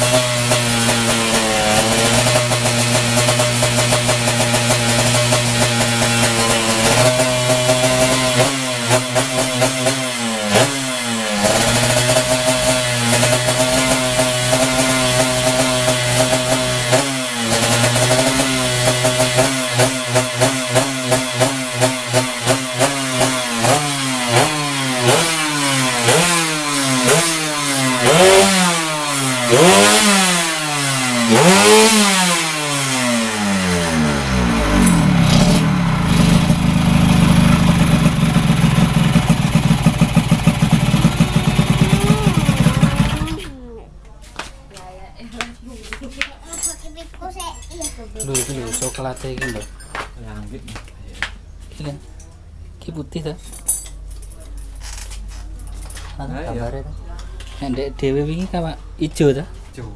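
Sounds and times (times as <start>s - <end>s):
two-stroke motorcycle engine revving: 0.0s - 43.6s.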